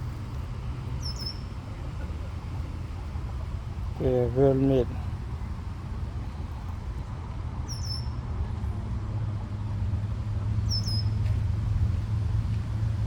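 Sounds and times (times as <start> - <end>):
low outdoor rumble: 0.0 - 13.0
small bird chirping: 1.0 - 1.4.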